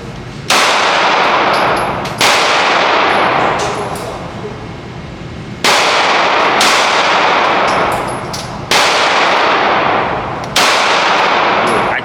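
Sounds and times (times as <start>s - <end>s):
loud gunshots with echo: 0.5s - 3.7s, 5.6s - 8.0s, 8.6s - 12.0s.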